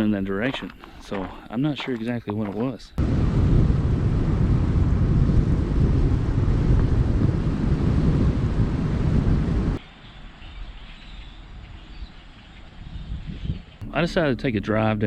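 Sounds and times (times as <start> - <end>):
wind buffeting microphone: 3.0 - 9.8, 10.5 - 14.6.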